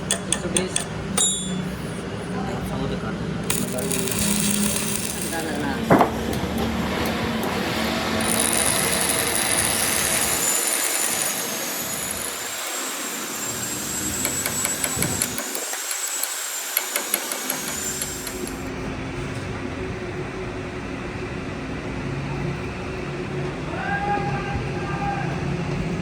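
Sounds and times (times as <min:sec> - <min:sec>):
machine tool whine: 0:03.4 - 0:18.8.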